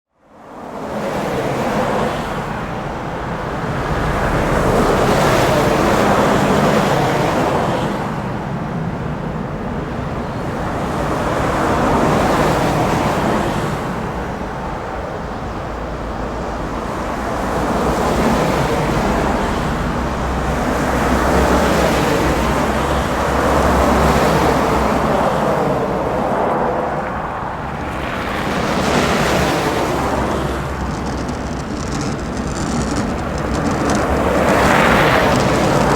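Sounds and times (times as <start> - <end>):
low engine rumble: 27.5 - 35.9
tyres rushing through snow: 27.6 - 35.9.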